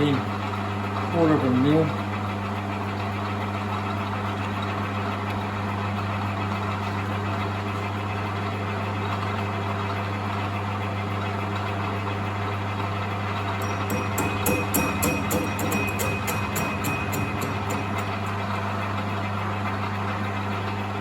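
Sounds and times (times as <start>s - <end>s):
metal lathe humming: 13.3s - 21.0s.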